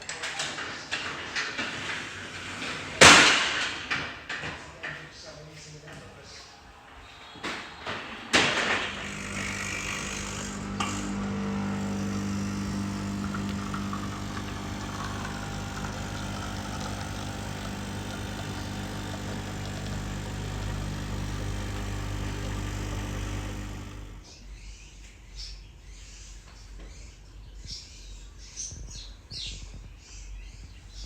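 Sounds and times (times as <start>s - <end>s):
motor humming: 8.6s - 24.4s.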